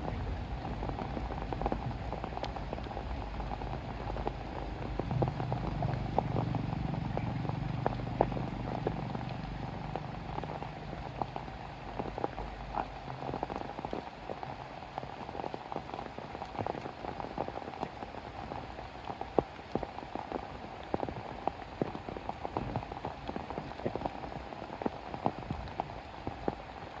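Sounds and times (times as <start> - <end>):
low rumble: 0.0 - 11.6
rain drops ticking on a surface: 0.0 - 27.0.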